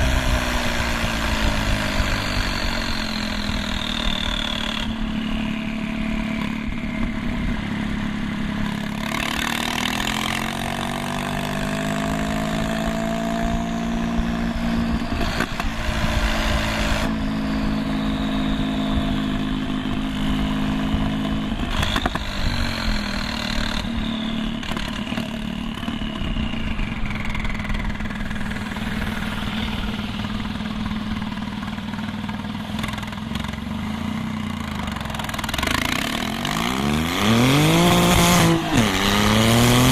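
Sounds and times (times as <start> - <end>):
car engine idling and revving: 0.0 - 39.9
high whistle gliding down: 17.4 - 19.5, 23.7 - 24.9, 25.8 - 27.6.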